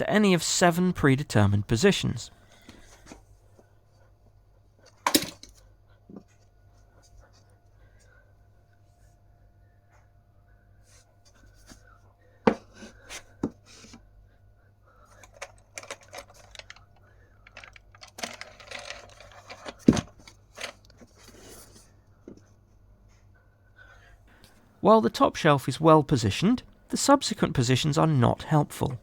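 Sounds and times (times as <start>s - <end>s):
rattling and rustling: 17.6s - 21.8s.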